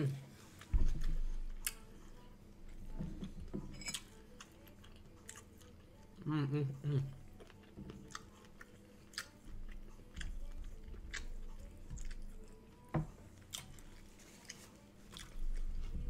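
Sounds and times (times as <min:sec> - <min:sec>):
chewing food: 0:03.2 - 0:16.0.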